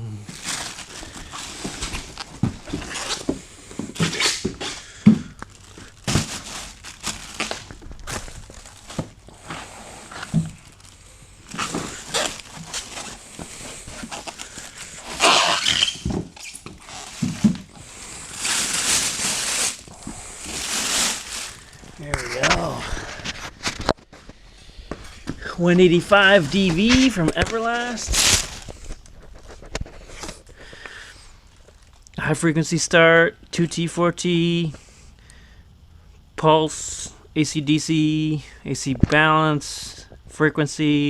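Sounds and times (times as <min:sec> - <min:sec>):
packaging rustling: 0:00.3 - 0:25.4, 0:26.0 - 0:30.8.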